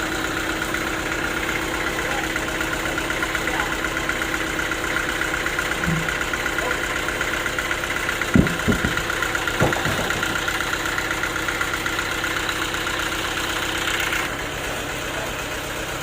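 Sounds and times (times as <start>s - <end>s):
sawmill engine running: 0.0s - 16.0s
short knocks: 5.8s - 6.3s, 8.3s - 10.7s.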